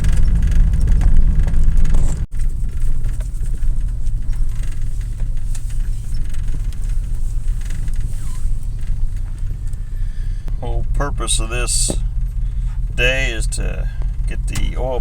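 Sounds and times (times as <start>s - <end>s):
pickup truck engine rumbling: 0.0s - 15.0s.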